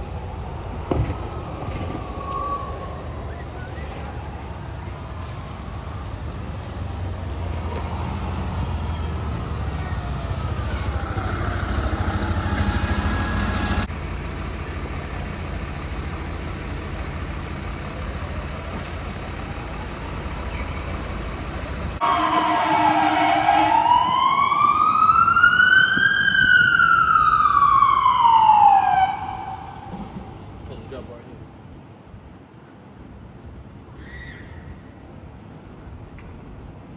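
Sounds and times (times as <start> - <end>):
siren wail: 0.0 - 5.3, 8.7 - 13.9, 22.0 - 30.0
diesel engine rumble: 0.0 - 22.2.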